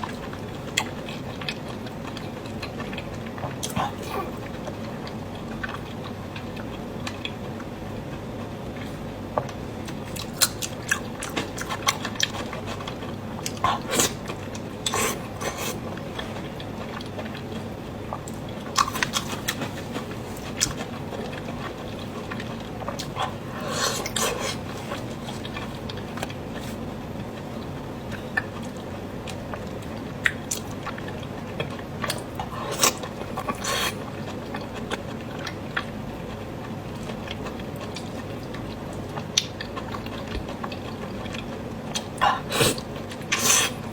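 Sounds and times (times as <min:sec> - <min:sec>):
chewing: 0:00.0 - 0:43.9.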